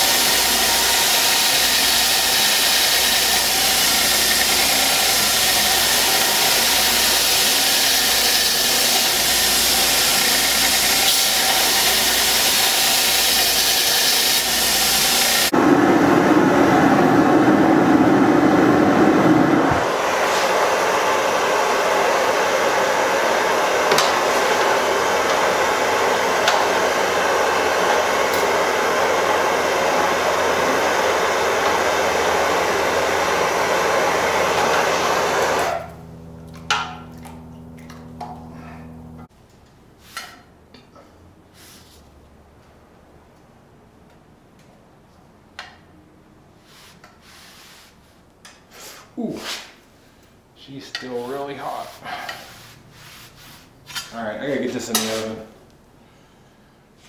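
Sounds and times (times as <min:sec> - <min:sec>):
forge burner and blower rushing: 0:00.0 - 0:39.3.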